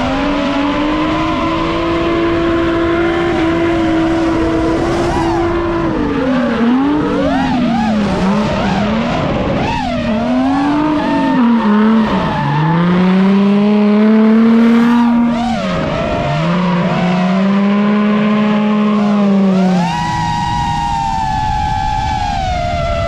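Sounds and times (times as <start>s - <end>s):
car engine at high revs: 0.0s - 23.0s.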